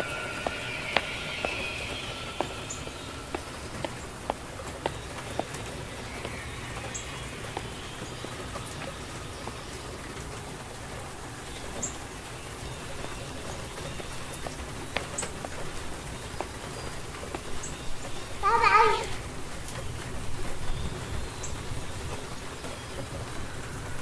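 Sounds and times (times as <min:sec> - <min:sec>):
rain-like hiss: 0:00.0 - 0:24.0.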